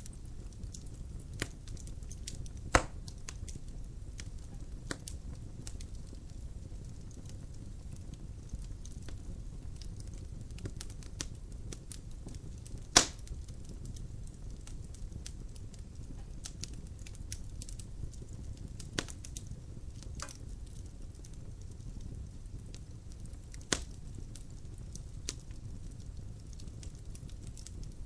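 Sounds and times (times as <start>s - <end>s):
low rumble of flames: 0.0s - 28.0s
wood fire crackling: 0.0s - 28.0s
loud pop of fire: 1.4s - 3.3s, 12.6s - 13.4s, 23.6s - 24.0s.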